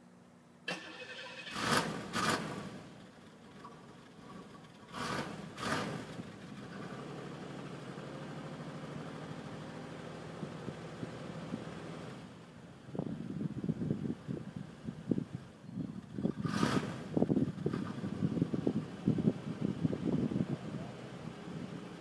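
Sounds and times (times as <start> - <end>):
car engine starting and idling: 0.6 - 14.4.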